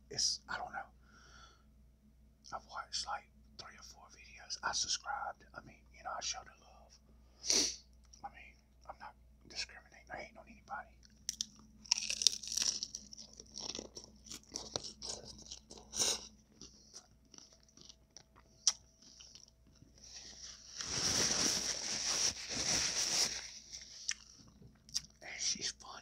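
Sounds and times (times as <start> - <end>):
person crunching taco: 11.0 - 19.9.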